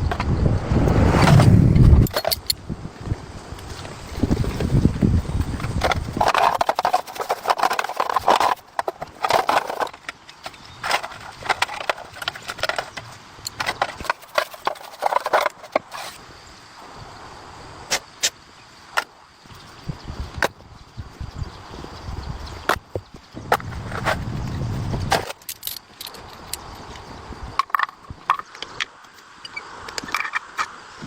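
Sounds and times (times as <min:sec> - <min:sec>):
low rumble: 0:00.0 - 0:05.5
scraping: 0:05.4 - 0:16.2.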